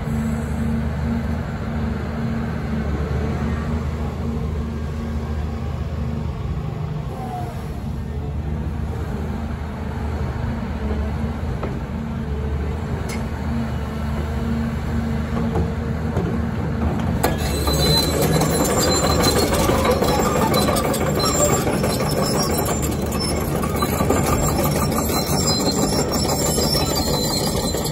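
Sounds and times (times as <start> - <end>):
excavator diesel engine running: 0.0 - 27.9
high squealing tones: 17.2 - 27.9.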